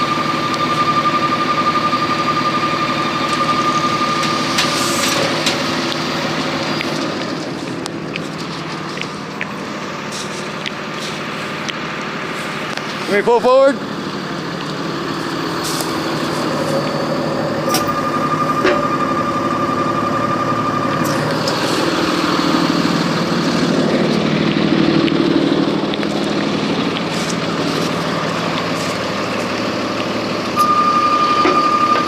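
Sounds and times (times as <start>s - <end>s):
high-pitched warning tone: 0.0s - 7.8s, 15.4s - 32.0s
truck engine running: 0.0s - 32.0s.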